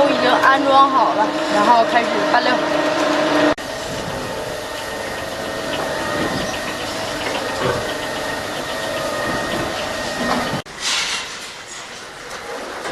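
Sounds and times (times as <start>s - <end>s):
feed mixer motor droning: 0.0s - 10.7s
short hiss: 10.8s - 11.7s.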